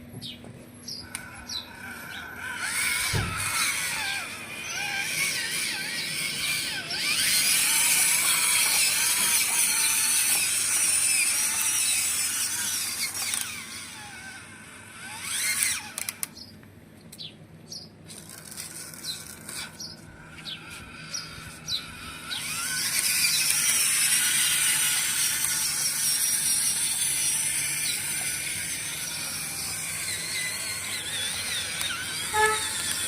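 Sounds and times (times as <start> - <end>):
electric gear motors whining: 0.7 - 16.5, 17.9 - 33.0
gears clicking and ratcheting: 1.0 - 16.4, 18.0 - 33.0
short squeaks: 18.1 - 33.0.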